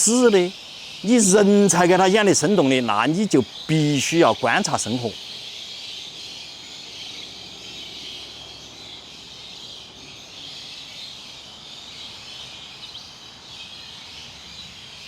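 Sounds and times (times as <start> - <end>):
insects droning: 0.0 - 10.2.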